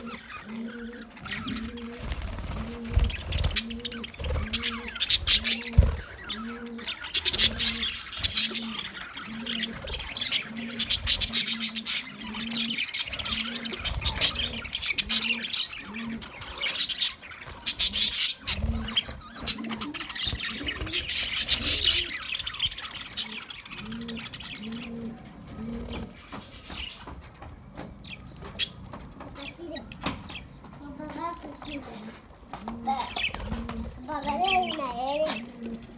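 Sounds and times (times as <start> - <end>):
low cooing notes: 0.0 - 16.8, 18.4 - 30.3, 31.6 - 35.9
parrots chattering and chirping: 0.0 - 35.9.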